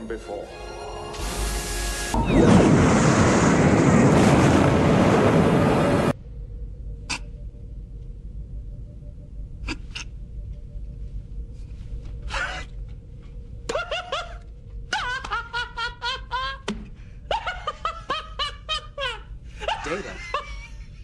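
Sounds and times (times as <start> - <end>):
low steady hum: 5.2 - 21.0
man laughing: 13.7 - 16.7, 17.3 - 21.0.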